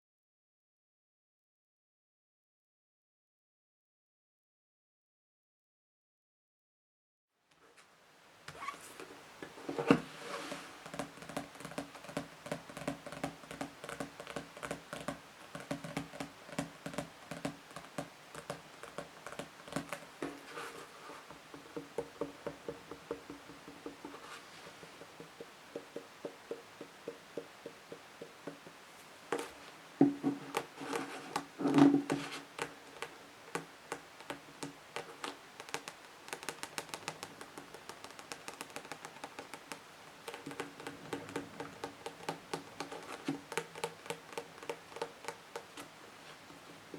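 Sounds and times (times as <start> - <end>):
fingernails tapping on books: 9.4 - 46.9.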